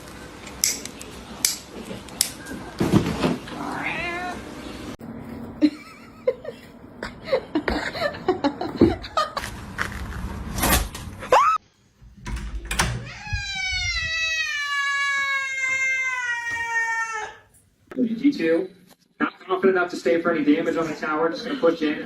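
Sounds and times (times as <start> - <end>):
cat meowing: 3.6 - 4.4, 13.0 - 17.5.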